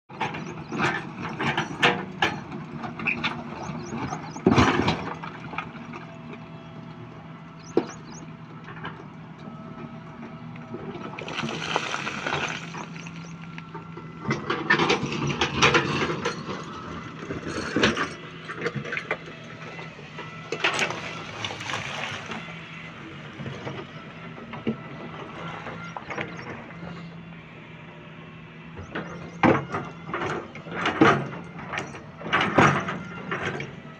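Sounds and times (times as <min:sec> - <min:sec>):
crane engine humming: 0:00.1 - 0:33.9.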